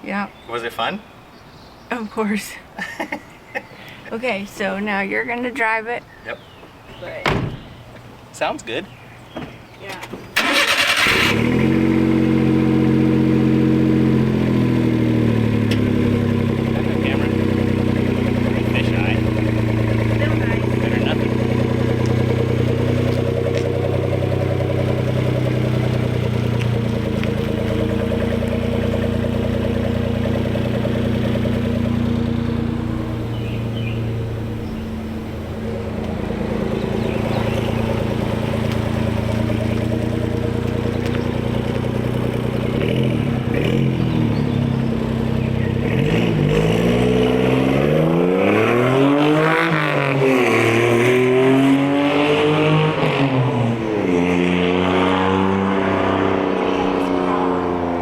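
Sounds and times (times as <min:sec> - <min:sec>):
truck engine with loud exhaust: 0:10.4 - 0:58.0.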